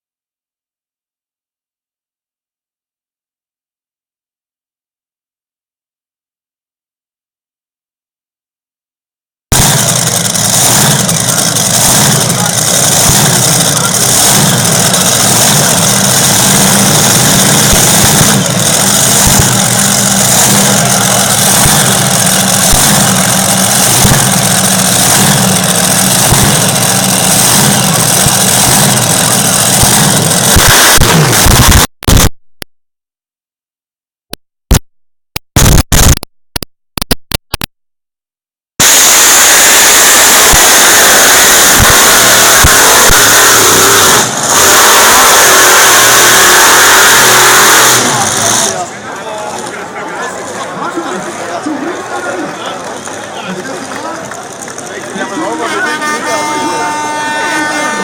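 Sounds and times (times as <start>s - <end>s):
tractor engine running hard: 9.5s - 32.2s, 38.8s - 58.0s.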